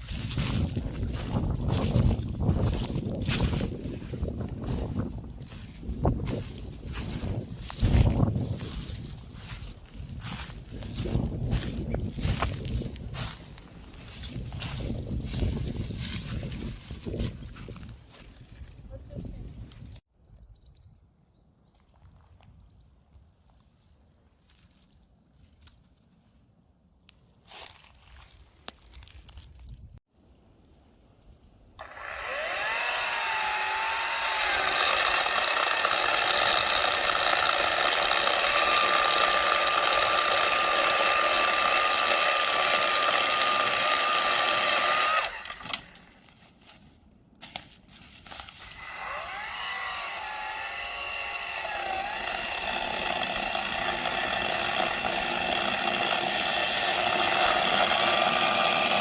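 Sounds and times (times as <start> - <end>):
electric power saw cutting wood: 31.8 - 46.0, 48.6 - 59.0.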